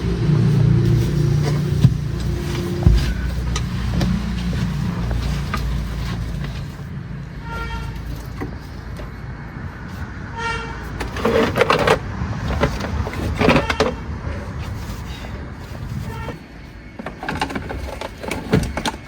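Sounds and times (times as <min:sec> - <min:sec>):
car engine running: 0:00.0 - 0:06.9
car horn toots: 0:07.4 - 0:08.1.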